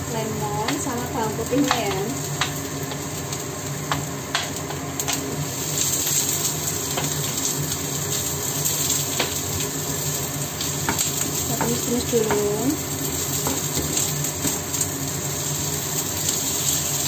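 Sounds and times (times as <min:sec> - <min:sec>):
food sizzling in a frying pan: 0:00.0 - 0:17.0
wooden spatula knocking on pan: 0:01.6 - 0:02.6, 0:10.8 - 0:12.6.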